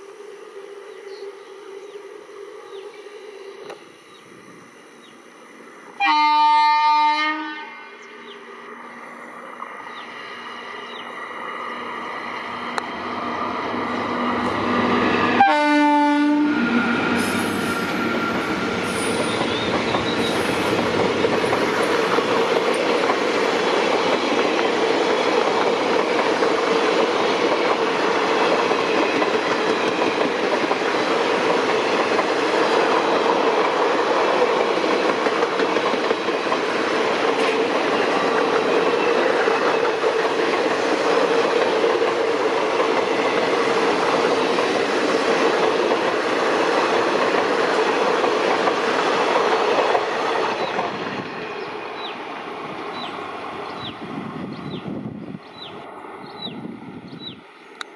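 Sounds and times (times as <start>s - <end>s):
train horn blast: 6.0s - 8.1s, 14.3s - 20.6s
train wheels rumbling on rails: 8.2s - 57.9s.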